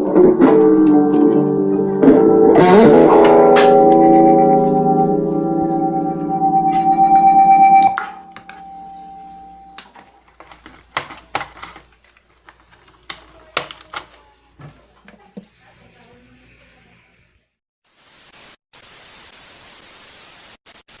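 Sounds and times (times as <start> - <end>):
handling noise clicks and knocks: 9.8 - 14.2
static hiss: 17.9 - 21.0.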